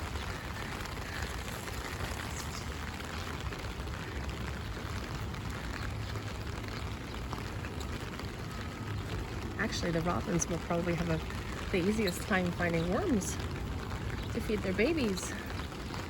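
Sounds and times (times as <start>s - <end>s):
rain on an umbrella: 0.0s - 16.0s.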